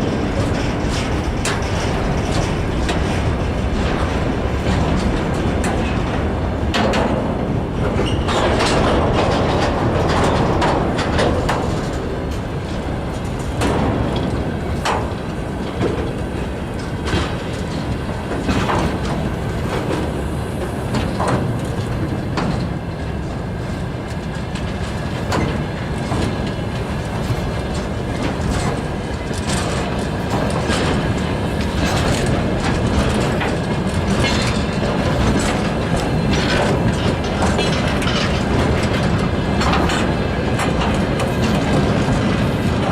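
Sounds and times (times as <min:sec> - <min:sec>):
freight wagons rolling past: 0:24.2 - 0:42.9
wheels knocking over rail joints: 0:24.4 - 0:42.9.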